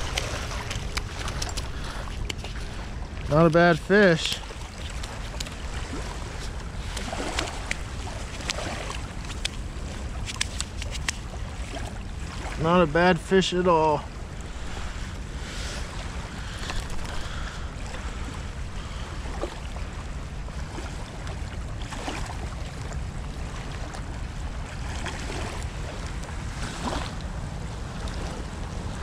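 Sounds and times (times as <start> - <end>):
wind buffeting microphone: 0.0 - 12.6
water rushing from outflow: 0.0 - 27.3.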